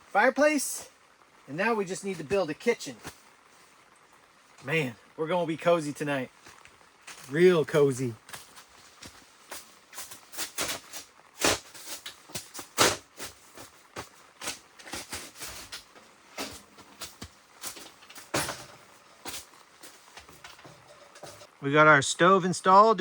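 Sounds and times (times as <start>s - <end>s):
camp gear knocking and clattering: 8.3s - 21.5s.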